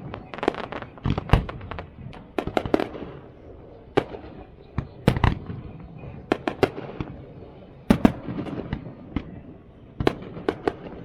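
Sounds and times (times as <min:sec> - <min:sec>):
fireworks banging: 0:00.0 - 0:11.0.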